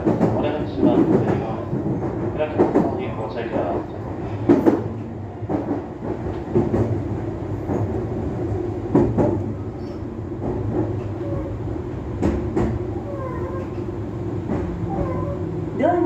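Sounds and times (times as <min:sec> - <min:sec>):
electric train running hum: 0:00.0 - 0:16.0.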